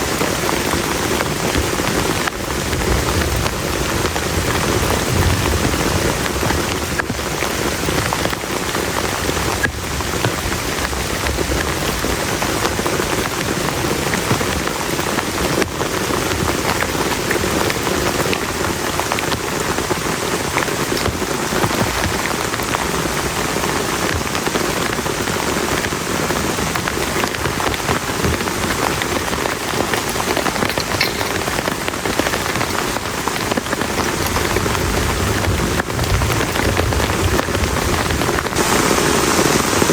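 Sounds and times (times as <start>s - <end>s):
heavy rain on a plastic tarp: 0.0s - 39.9s.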